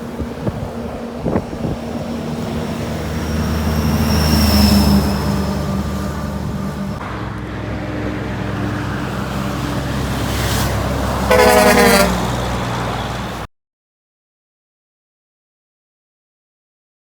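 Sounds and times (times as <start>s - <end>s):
truck engine running: 0.0s - 13.5s
truck horn blast: 11.0s - 13.5s.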